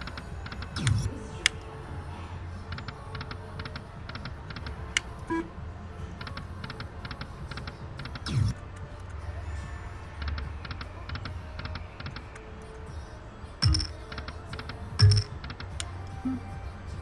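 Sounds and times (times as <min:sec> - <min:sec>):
music: 0:00.0 - 0:17.0
sharp clicks: 0:00.2 - 0:01.7, 0:06.2 - 0:09.2, 0:13.6 - 0:16.4
casino hum: 0:04.9 - 0:05.6, 0:13.6 - 0:16.6
electronic ticks of slot reels: 0:13.6 - 0:16.4.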